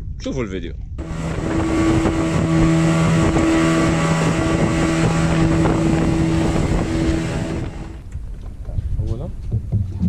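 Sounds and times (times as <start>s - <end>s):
wind buffeting microphone: 0.1s - 10.0s
motorboat engine humming: 1.0s - 8.2s.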